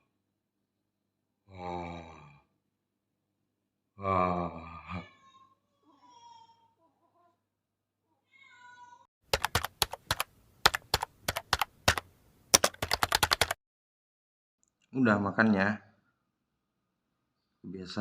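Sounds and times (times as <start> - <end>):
cat meowing faintly: 8.1 - 9.1
rapid sharp clicks: 9.3 - 13.6.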